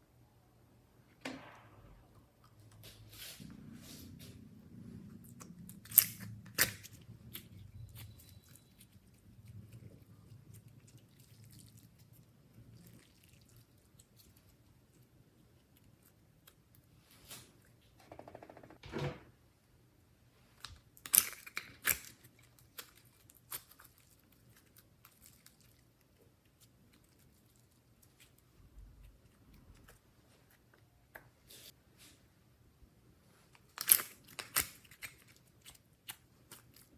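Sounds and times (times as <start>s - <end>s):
slime squelch: 2.3s - 17.8s.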